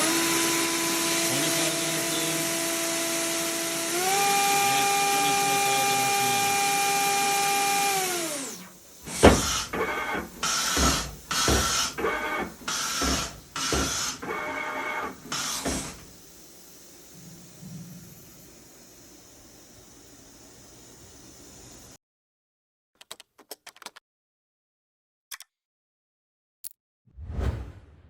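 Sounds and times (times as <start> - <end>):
machine spindle whine: 0.0 - 8.7, 9.6 - 16.1.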